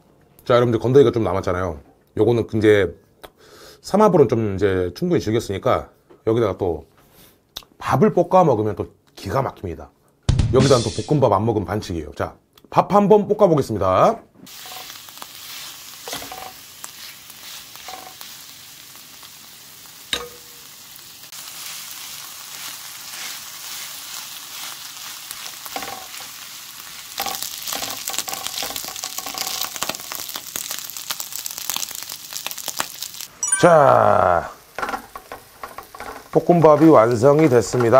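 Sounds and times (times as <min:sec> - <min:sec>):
rice sizzling in a pan: 0:14.5 - 0:33.3, 0:34.2 - 0:37.9
wooden spatula scraping a pan: 0:22.5 - 0:26.3, 0:34.7 - 0:37.9.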